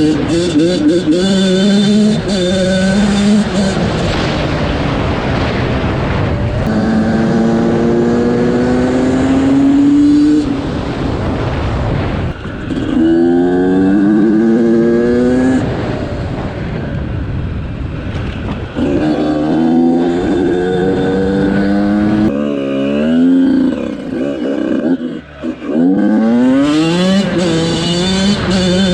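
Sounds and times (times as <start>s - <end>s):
motorcycle engine accelerating: 0.0s - 28.9s
wind rush: 2.0s - 22.4s.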